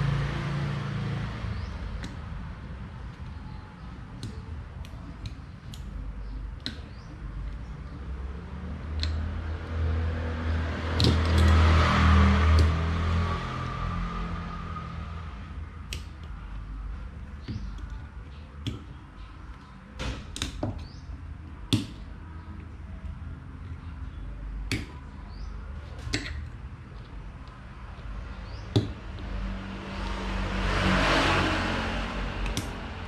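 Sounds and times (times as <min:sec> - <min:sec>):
light clicks of small parts: 0:08.9 - 0:09.8.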